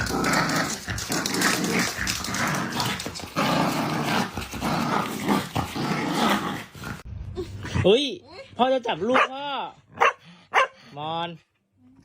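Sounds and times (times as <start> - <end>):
dog growling: 0.0 - 7.1.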